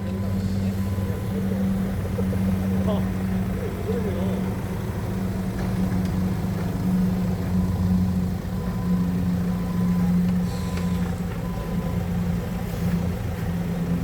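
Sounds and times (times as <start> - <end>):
forklift engine running: 0.0 - 14.0.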